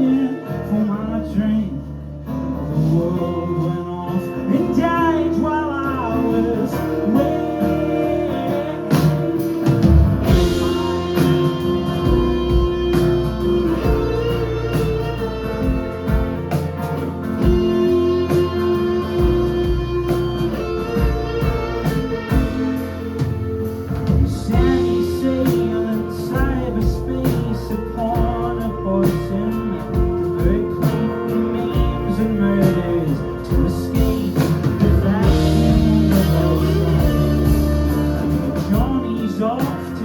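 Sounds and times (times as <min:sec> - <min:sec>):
lead guitar: 0:00.0 - 0:40.0
live rock band playing: 0:00.0 - 0:40.0.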